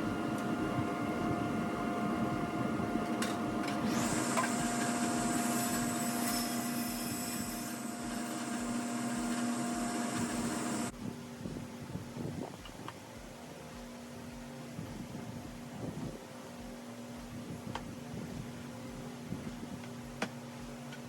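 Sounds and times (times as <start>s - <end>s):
power tool motor running: 0.0s - 10.9s
hissing noise: 2.2s - 20.8s.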